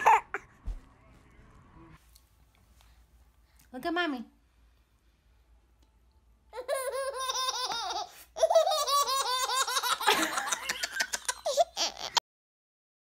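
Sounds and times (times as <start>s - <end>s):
baby laughing: 6.5s - 12.2s.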